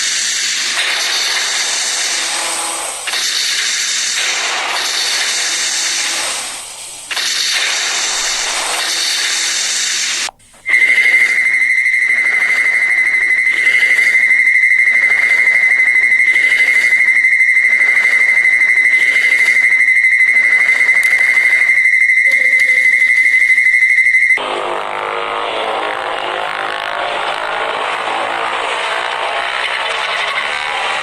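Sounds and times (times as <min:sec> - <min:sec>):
loud steam-like hiss: 0:00.0 - 0:11.4
pulsing hiss: 0:00.0 - 0:20.0
high-pitched whistle tone: 0:07.8 - 0:24.4.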